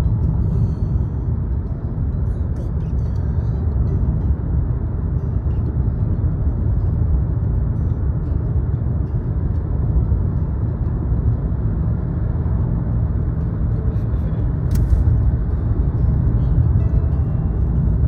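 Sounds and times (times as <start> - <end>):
car engine rumble: 0.0 - 18.0
road noise: 0.0 - 18.0
brief click: 14.6 - 15.1.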